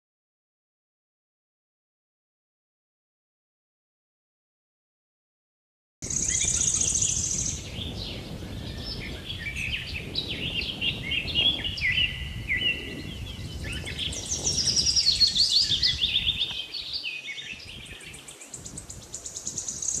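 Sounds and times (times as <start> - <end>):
songbirds chirping and trilling: 6.0 - 20.0.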